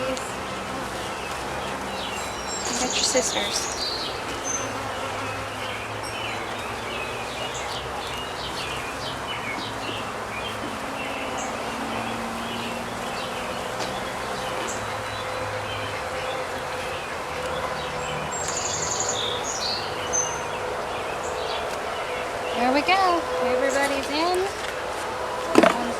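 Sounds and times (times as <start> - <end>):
honeybees buzzing: 0.0 - 25.9
songbirds chirping: 0.0 - 25.9.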